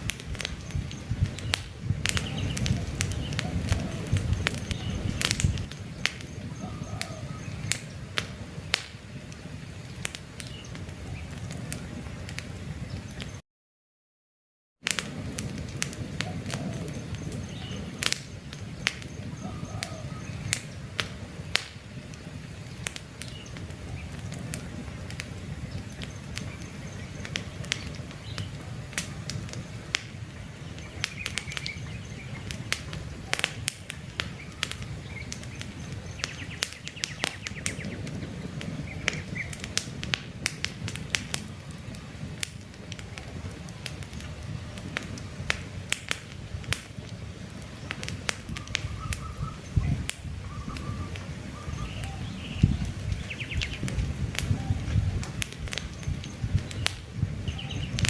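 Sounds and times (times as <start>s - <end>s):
campfire crackling: 0.0s - 13.4s, 14.8s - 58.0s
faint bird chirps: 0.5s - 7.9s, 18.6s - 20.8s, 48.6s - 53.9s.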